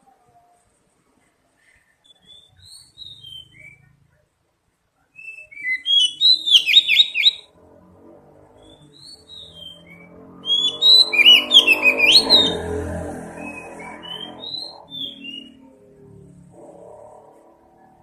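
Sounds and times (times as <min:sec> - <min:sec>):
bird singing whistles and trills: 0:02.0 - 0:03.9, 0:05.2 - 0:07.5, 0:08.6 - 0:15.7.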